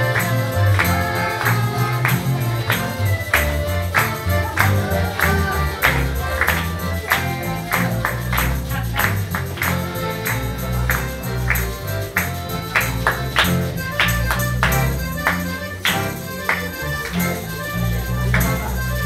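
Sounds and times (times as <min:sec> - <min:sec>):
accordion: 0:00.0 - 0:19.0
guitars playing: 0:00.0 - 0:19.0
tambourines and hand percussion: 0:00.0 - 0:19.0.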